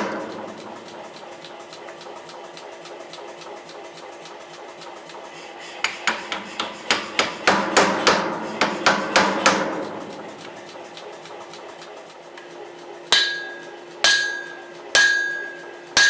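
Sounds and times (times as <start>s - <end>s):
hammer striking steel on anvil: 0.0s - 1.0s, 5.9s - 10.5s, 13.1s - 16.0s
steady hum: 0.0s - 16.0s.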